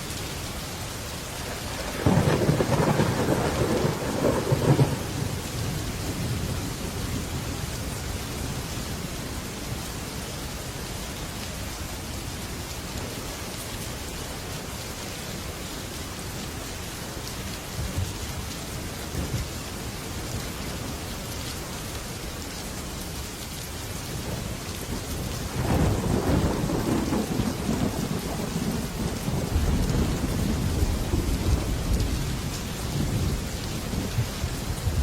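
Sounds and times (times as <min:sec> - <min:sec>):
heavy rain on a metal roof: 0:00.0 - 0:35.0
rumble of thunder: 0:01.5 - 0:07.8, 0:24.2 - 0:35.0.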